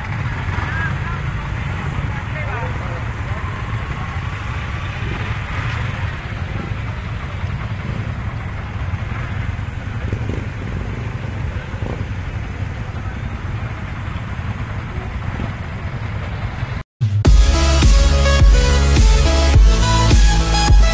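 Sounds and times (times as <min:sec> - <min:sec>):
motorcycle engine rumble: 0:00.0 - 0:20.9
music with heavy beat: 0:17.0 - 0:20.9.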